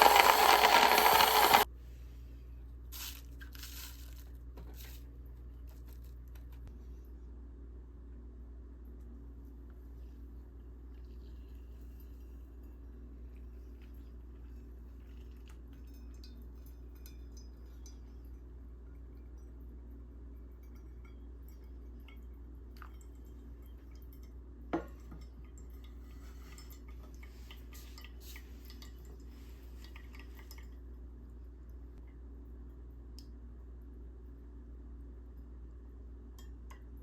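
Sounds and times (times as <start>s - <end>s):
small hard objects clinking: 0.0s - 1.7s, 3.0s - 5.0s.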